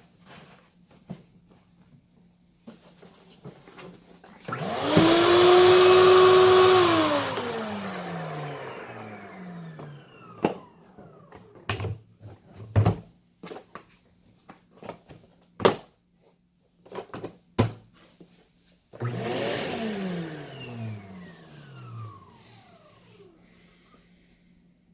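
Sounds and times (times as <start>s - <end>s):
shop vac motor running and winding down: 4.5s - 11.8s, 19.0s - 24.1s.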